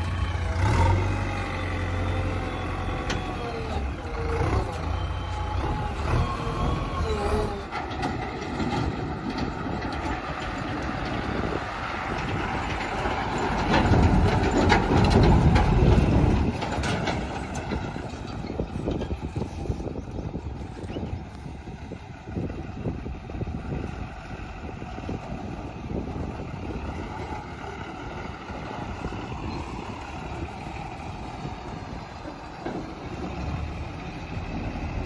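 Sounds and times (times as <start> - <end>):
backhoe clanking: 0.0 - 35.0
backhoe diesel engine running: 0.0 - 35.0.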